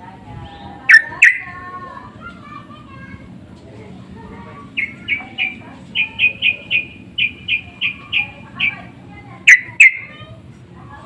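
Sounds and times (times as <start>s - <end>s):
bird calling short notes: 4.8s - 8.8s.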